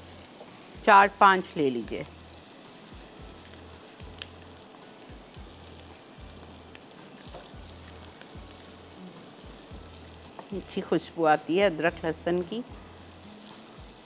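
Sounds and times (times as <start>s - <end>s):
food sizzling in hot oil: 0.0s - 14.0s
soft background music: 0.0s - 14.0s
spatula tapping wok: 7.2s - 8.4s.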